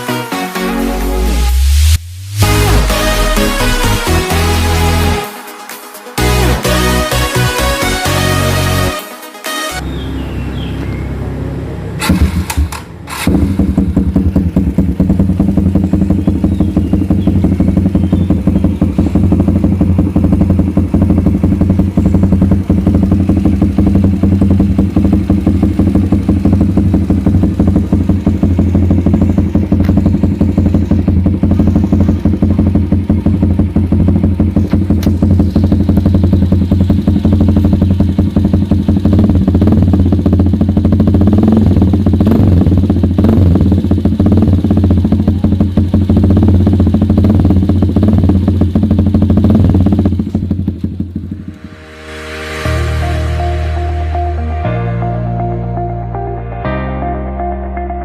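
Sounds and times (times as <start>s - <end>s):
motorcycle engine starting and idling: 9.8s - 52.2s.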